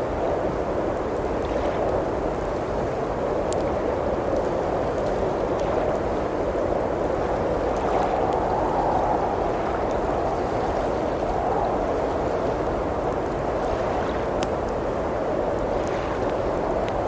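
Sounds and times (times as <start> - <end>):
faint wood fire crackles: 0.0 - 17.0
wind howling: 7.0 - 17.0.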